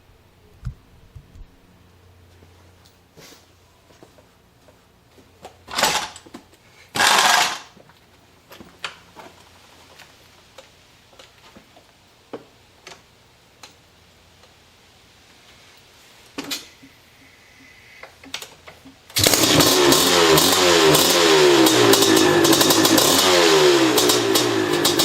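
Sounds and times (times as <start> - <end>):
loud short noisy bursts: 5.7 - 6.2, 7.0 - 7.7.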